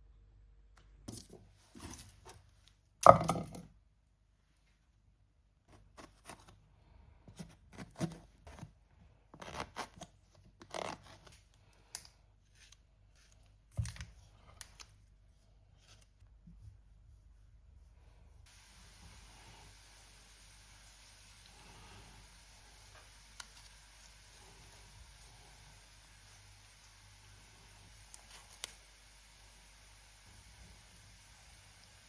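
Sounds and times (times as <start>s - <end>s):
rustling of things handled: 1.0s - 2.8s, 10.0s - 17.8s.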